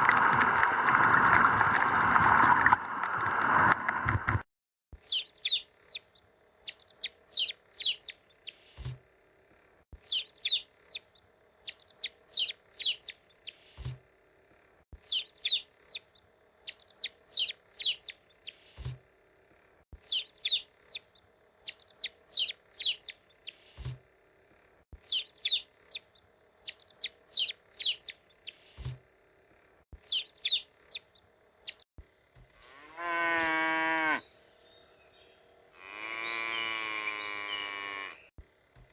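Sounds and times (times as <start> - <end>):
chicks peeping: 5.0 - 8.9, 10.0 - 13.9, 15.0 - 18.8, 20.0 - 23.9, 25.0 - 28.9, 30.0 - 31.8
loud animal call: 32.6 - 34.3, 35.8 - 38.3.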